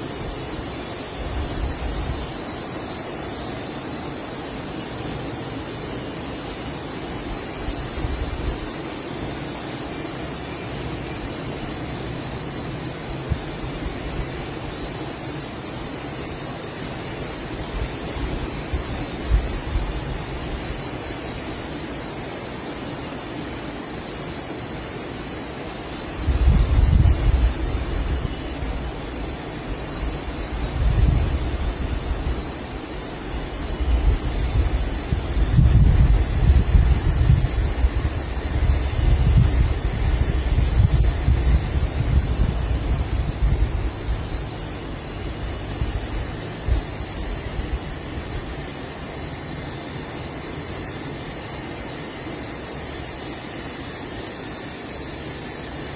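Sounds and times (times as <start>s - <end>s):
high-pitched insect chorus: 0.0s - 55.9s
pulsing insect trill: 0.0s - 55.9s
wind buffeting microphone: 26.1s - 32.7s, 33.4s - 48.6s.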